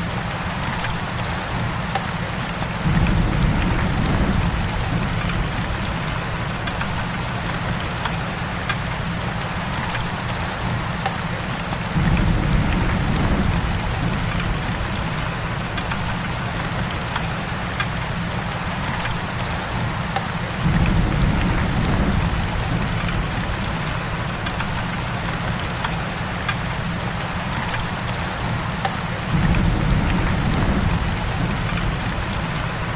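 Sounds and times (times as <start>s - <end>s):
heavy rain: 0.0s - 32.9s
low rumble: 2.8s - 7.1s, 12.0s - 16.2s, 20.6s - 24.2s, 29.3s - 32.9s.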